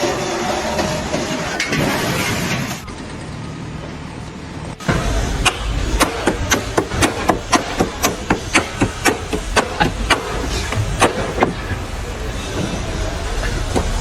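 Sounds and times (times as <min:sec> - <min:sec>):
steady low hum: 0:00.0 - 0:14.0
sharp regular knocks: 0:04.7 - 0:14.0.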